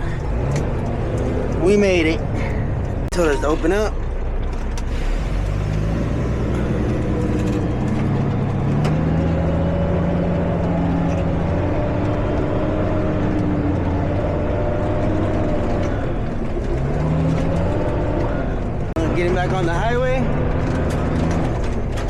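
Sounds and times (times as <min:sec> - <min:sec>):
truck diesel engine under load: 0:00.0 - 0:22.0.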